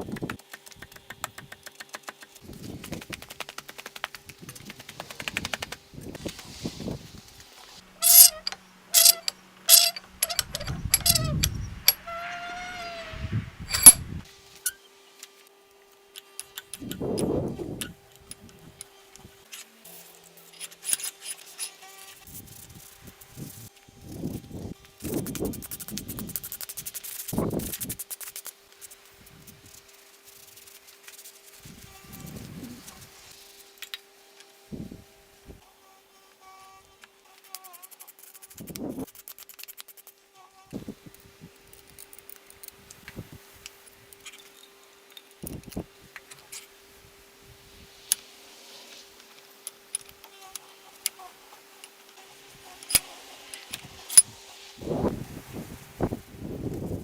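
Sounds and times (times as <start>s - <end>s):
rapid scraping strokes: 8.0s - 11.5s
ringing metal clanks: 8.0s - 12.0s, 13.7s - 14.0s.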